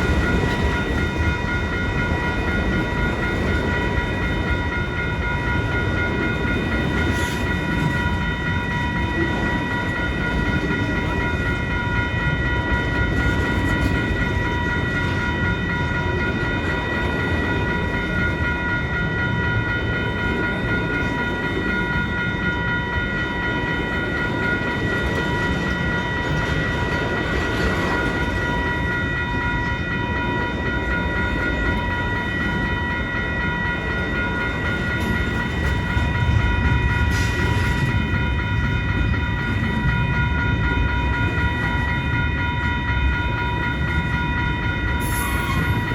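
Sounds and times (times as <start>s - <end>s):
freight train rumbling on rails: 0.0s - 45.9s
high steady ringing tones: 0.0s - 45.9s.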